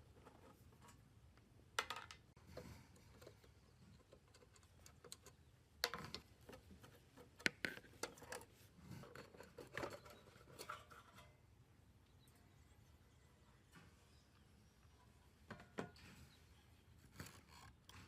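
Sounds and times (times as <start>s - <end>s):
tools clicking and scraping: 3.0s - 11.4s.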